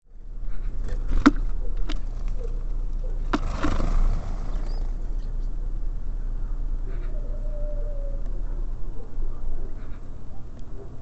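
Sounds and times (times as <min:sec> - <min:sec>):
birds rustling: 0:00.4 - 0:07.3.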